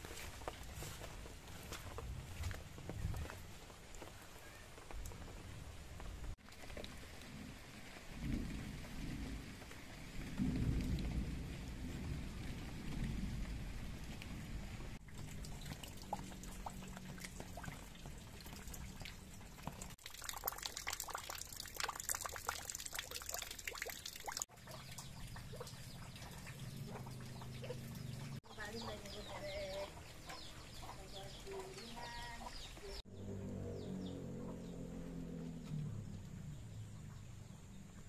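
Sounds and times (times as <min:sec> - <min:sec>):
rain falling: 0:00.0 - 0:38.0
deep rumble: 0:07.2 - 0:19.4, 0:29.0 - 0:38.0.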